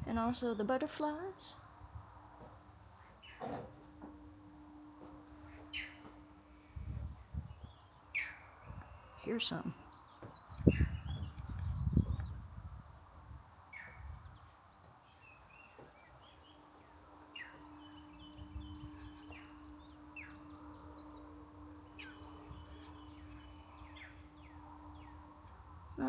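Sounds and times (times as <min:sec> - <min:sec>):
faint low hum: 0:00.0 - 0:26.0
bird chirping and twittering: 0:05.7 - 0:06.1, 0:07.4 - 0:12.4, 0:13.7 - 0:25.5.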